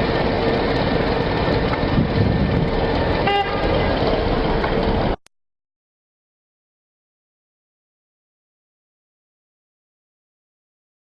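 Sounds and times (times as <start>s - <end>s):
vehicle road and engine noise: 0.0s - 5.3s
car horn toot: 3.2s - 3.8s.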